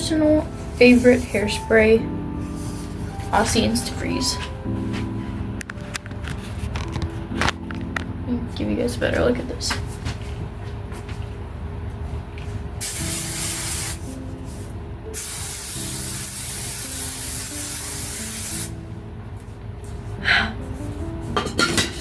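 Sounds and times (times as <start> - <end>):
aerosol hairspray hissing: 12.8 - 14.1, 15.2 - 18.7.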